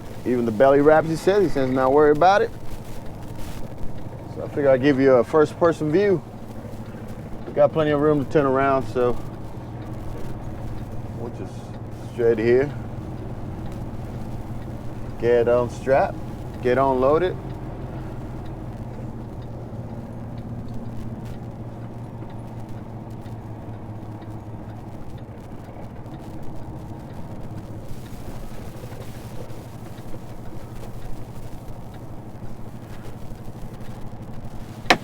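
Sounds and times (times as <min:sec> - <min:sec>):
faint hiss: 0:00.0 - 0:21.3
truck diesel engine running: 0:00.0 - 0:35.0.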